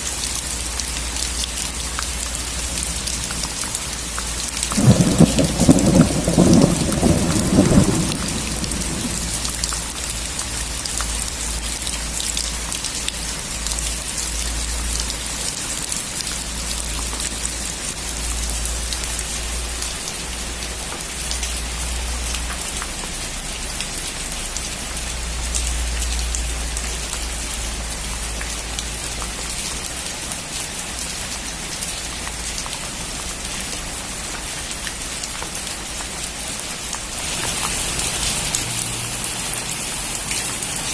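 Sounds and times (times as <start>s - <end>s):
steady rain falling: 0.0s - 40.9s
thunder rumbling: 4.7s - 9.8s.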